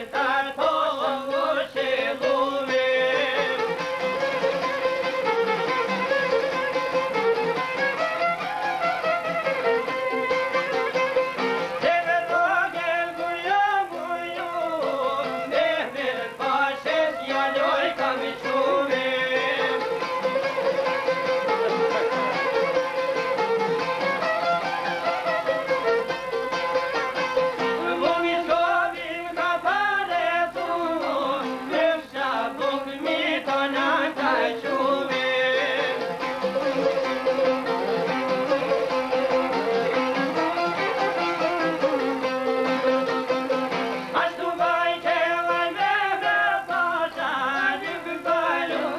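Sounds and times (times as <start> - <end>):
person singing: 0.0 - 4.7, 11.6 - 22.7, 27.6 - 37.7, 44.0 - 48.9
folk band with violin: 0.0 - 48.9
instrumental accompaniment: 0.0 - 48.9.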